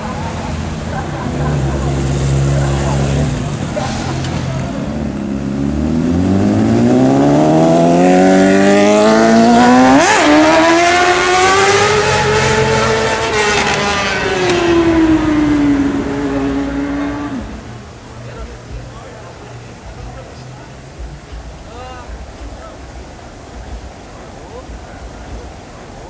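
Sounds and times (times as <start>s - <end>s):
motorcycle engine accelerating: 0.9s - 17.8s.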